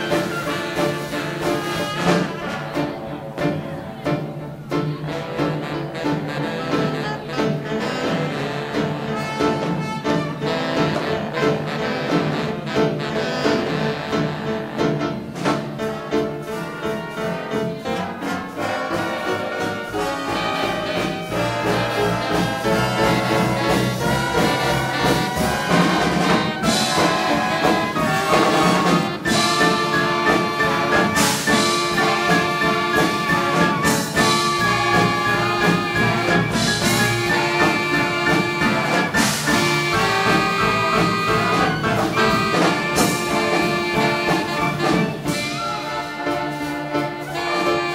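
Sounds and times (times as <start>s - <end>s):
big band playing swing jazz: 0.0s - 47.9s
trumpets and trombones: 0.0s - 47.9s.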